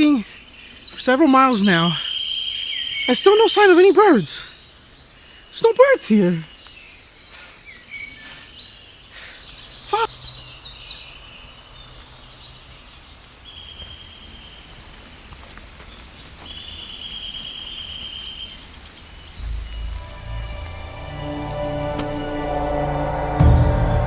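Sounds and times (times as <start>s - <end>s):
outdoor background noise: 0.0s - 24.0s
wild birds chirping and trilling: 0.0s - 24.0s
low rumble: 19.4s - 24.0s.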